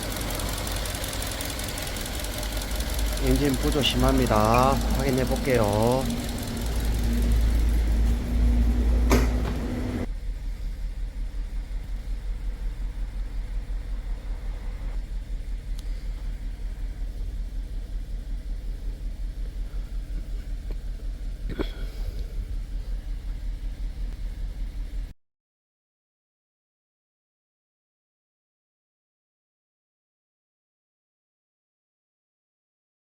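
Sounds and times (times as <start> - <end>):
car engine idling roughly: 0.0 - 25.1.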